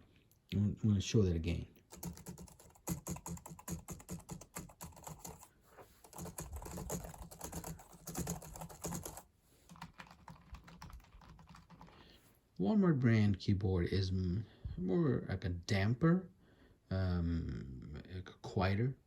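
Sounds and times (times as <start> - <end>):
keyboard typing clicks: 6.1 - 12.0.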